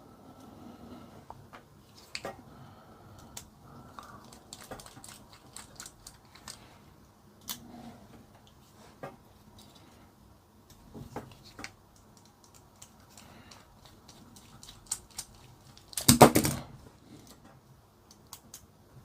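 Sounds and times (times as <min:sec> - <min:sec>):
plastic parts and tool clicking: 0:11.1 - 0:17.4.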